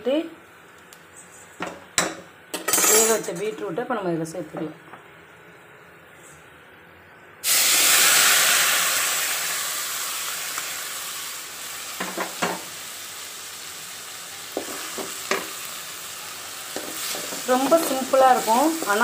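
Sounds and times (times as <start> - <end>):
food sizzling in hot oil: 7.4 - 19.0.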